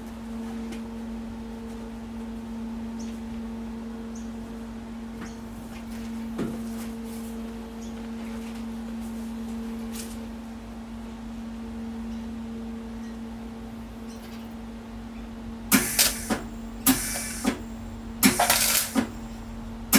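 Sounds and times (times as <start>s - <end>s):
electrical hum: 0.0s - 19.9s
short hissing bursts: 15.7s - 17.6s, 18.2s - 19.2s.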